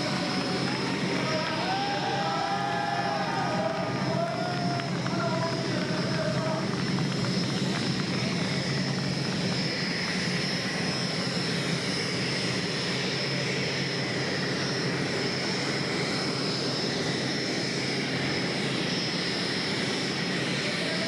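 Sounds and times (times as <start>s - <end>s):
gas turbines whining: 0.0s - 13.7s.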